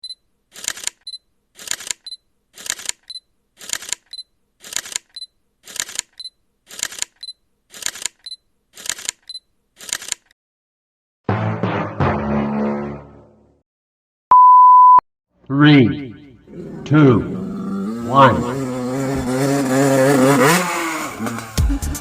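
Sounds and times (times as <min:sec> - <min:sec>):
camera shutter: 0:00.5 - 0:10.3.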